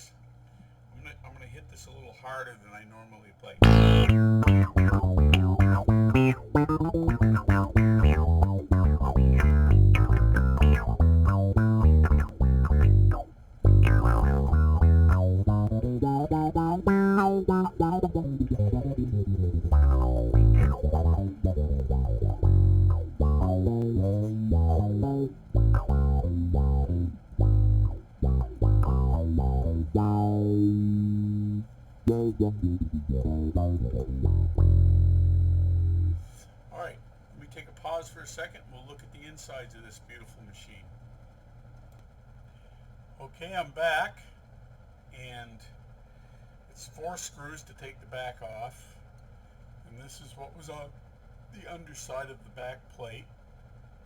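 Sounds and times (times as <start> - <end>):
electric bass with wah filter: 3.6 - 36.3.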